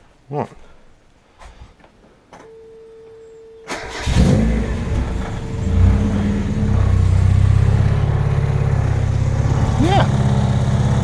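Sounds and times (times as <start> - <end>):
faint steady hum: 0.0 - 3.7
car engine revving and idling: 3.8 - 11.0.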